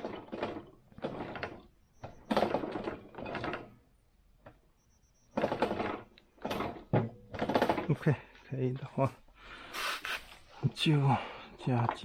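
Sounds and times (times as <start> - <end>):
metal sliding and clunking: 0.0 - 8.9.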